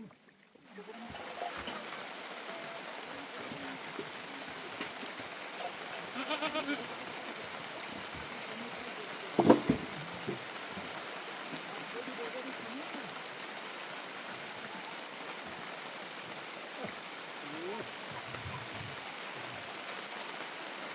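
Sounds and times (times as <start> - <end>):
heavy rain hissing: 0.0 - 20.9
animal bleat: 5.6 - 7.0.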